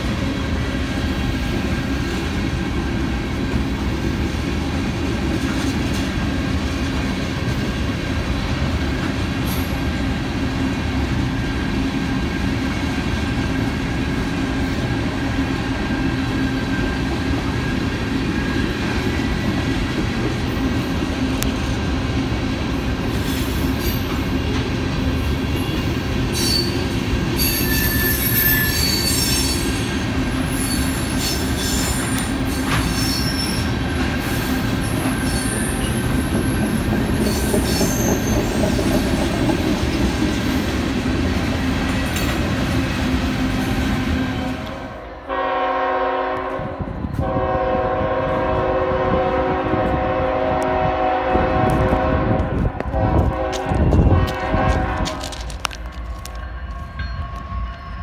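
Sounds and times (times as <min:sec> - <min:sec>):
freight train wheels rumbling: 0:00.0 - 0:58.0
high-pitched wheel squeal: 0:26.3 - 0:33.8, 0:34.8 - 0:36.6, 0:37.2 - 0:38.7.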